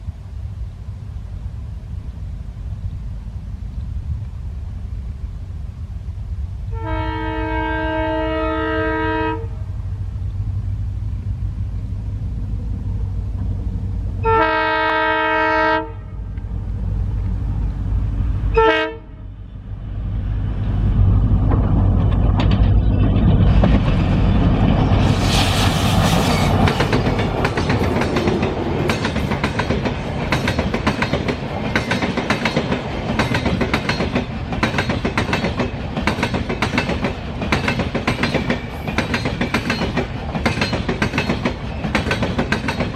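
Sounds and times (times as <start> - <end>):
locomotive air horn: 6.7 - 9.6, 14.2 - 16.2, 18.5 - 19.3
train wheels clacking over rail joints: 21.4 - 24.9, 26.4 - 42.9.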